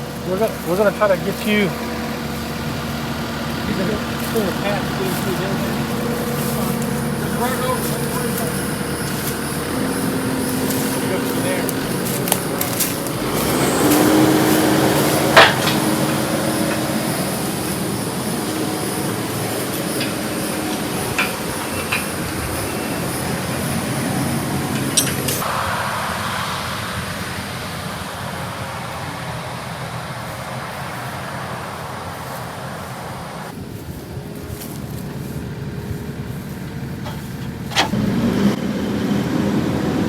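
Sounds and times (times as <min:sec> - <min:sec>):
vehicle engine running: 0:00.0 - 0:40.0
sharp crack of brush: 0:04.2 - 0:17.6.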